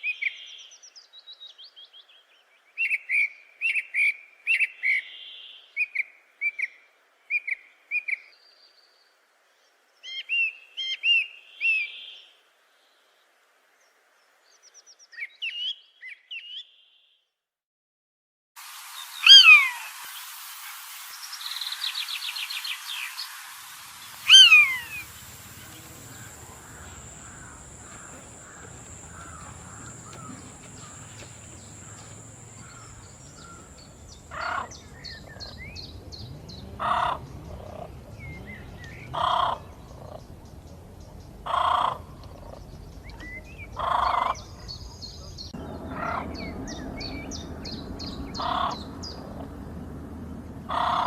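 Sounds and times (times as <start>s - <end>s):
birds calling: 21.2s - 35.6s.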